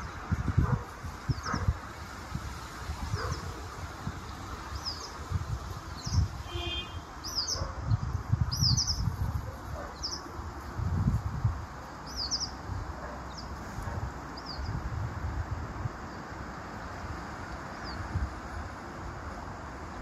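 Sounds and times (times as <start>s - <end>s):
wind gusting on microphone: 0.0s - 20.0s
small bird chirping: 7.2s - 9.3s, 12.0s - 12.6s.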